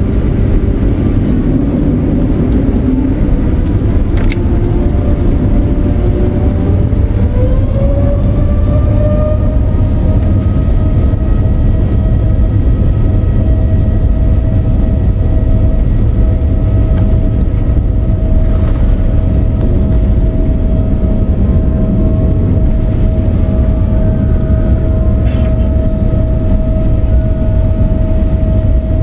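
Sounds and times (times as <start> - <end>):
jet engine whine and rumble: 0.0 - 29.0.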